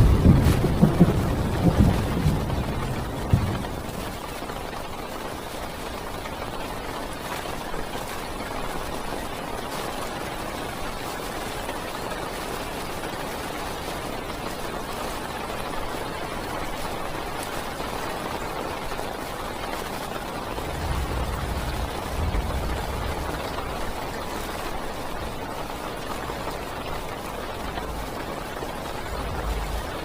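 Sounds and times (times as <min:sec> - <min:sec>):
distant thunder rumble: 0:00.0 - 0:04.2, 0:20.4 - 0:30.0
heavy rain on car roof: 0:00.0 - 0:30.0.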